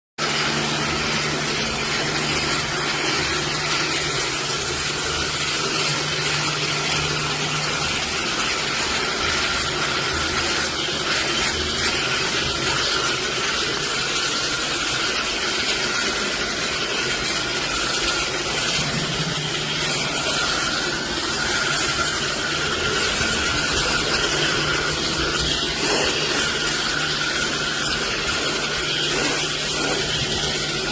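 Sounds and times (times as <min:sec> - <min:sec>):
pressure washer spraying water: 0:00.2 - 0:30.9
motor humming: 0:16.1 - 0:30.9.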